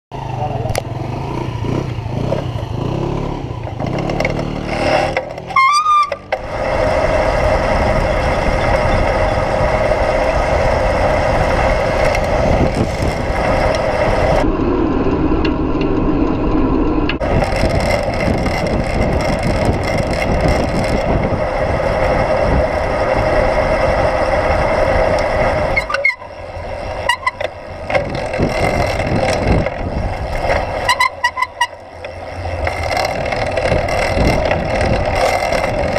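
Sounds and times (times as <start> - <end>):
engine rising in pitch: 0.1 - 35.9
riding noise rushing: 0.2 - 35.9.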